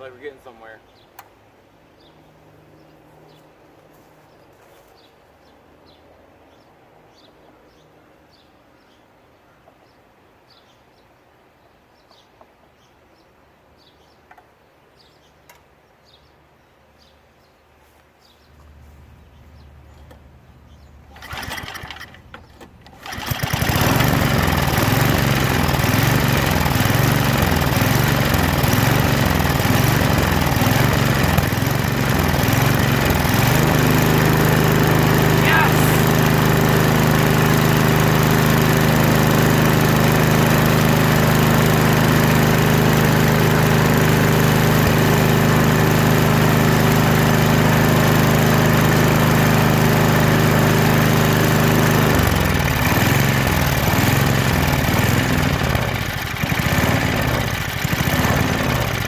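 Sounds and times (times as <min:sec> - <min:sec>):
snowblower engine sputtering and running: 0:18.6 - 0:59.0.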